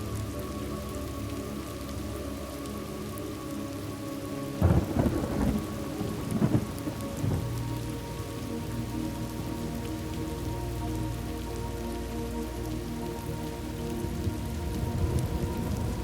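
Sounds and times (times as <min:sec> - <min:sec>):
steady rainfall: 0:00.0 - 0:16.0
thunder rumbling: 0:04.6 - 0:07.7, 0:14.1 - 0:16.0.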